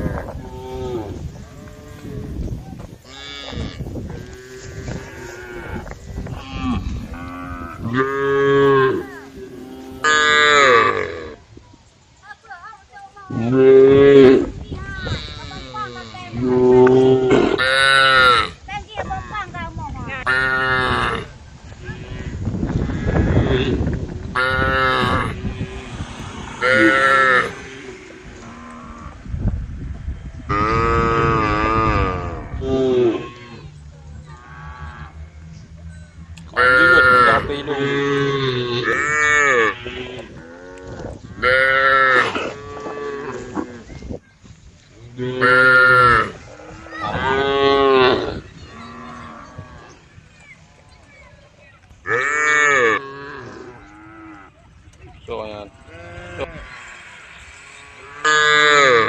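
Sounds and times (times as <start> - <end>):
cow mooing: 3.1 - 11.4, 22.2 - 29.2, 30.5 - 35.5, 36.4 - 43.8, 45.2 - 50.0, 52.1 - 54.6, 55.8 - 59.0.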